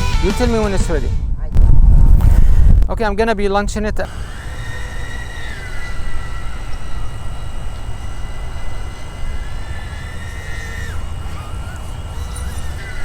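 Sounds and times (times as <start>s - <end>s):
wind rumble on microphone: 0.3s - 4.1s
drone propellers whining: 2.0s - 13.0s.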